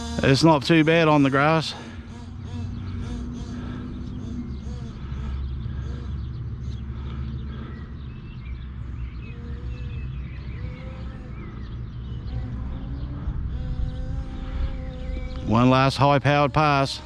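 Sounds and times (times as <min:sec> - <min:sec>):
birds chirping faintly: 0:00.0 - 0:17.0
wind rumble on microphone: 0:02.1 - 0:16.6.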